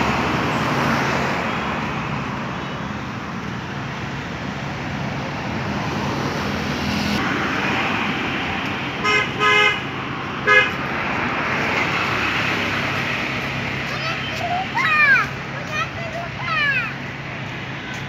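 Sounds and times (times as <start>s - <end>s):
road traffic noise: 0.0s - 18.0s
vehicle horn honking: 9.0s - 9.8s, 10.4s - 10.8s.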